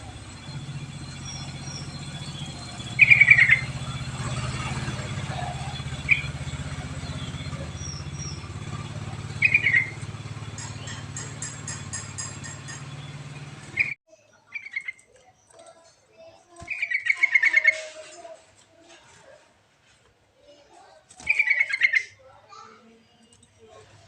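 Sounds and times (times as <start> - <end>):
engine hum: 0.0 - 14.0
bird chirping song: 0.0 - 18.3, 21.2 - 22.2.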